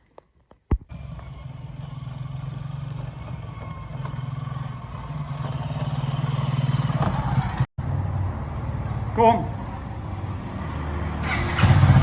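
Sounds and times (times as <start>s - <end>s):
vehicle engine running at low revs: 0.9s - 7.7s.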